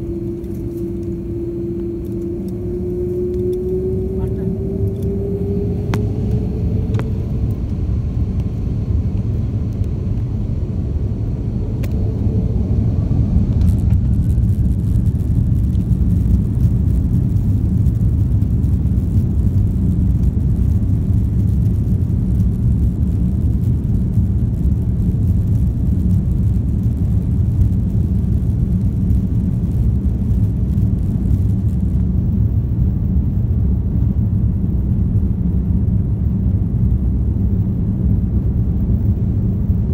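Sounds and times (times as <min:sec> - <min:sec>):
jet engines spooling up: 0:00.0 - 0:15.6
aircraft cabin rumble: 0:00.0 - 0:39.9.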